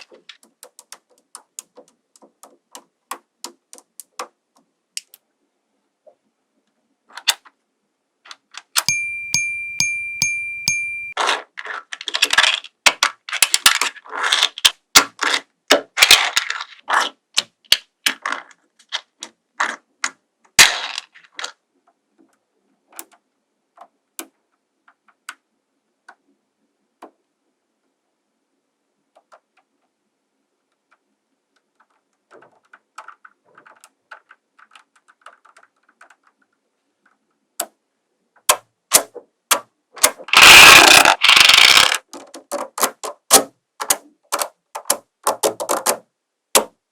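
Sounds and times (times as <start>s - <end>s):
magnetic balls clicking: 0.0s - 5.2s, 8.8s - 11.2s, 40.4s - 42.6s.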